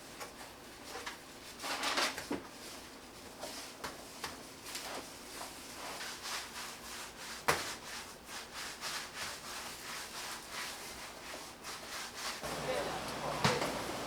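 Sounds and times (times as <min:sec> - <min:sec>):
hands rubbing dough on board: 0:02.5 - 0:14.0.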